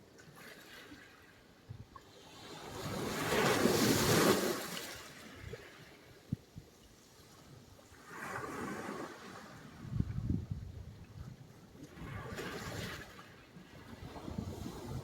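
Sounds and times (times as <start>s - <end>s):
wave surging and washing back: 2.4s - 6.3s, 11.8s - 15.0s.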